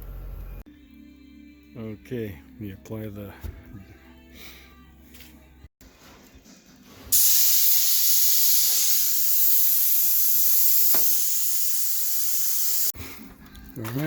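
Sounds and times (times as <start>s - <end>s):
spray paint hissing: 7.1s - 13.0s.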